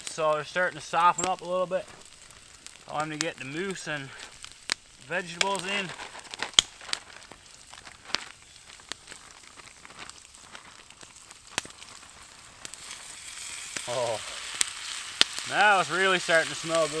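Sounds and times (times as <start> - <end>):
campfire crackling and popping: 0.0 - 17.0
food sizzling in frying pan: 0.0 - 17.0.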